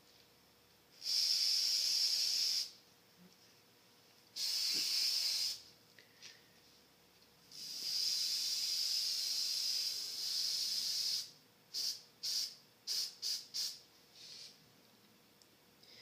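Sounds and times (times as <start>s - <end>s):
spray paint can hissing: 1.0s - 2.8s, 4.4s - 5.6s, 7.5s - 14.5s.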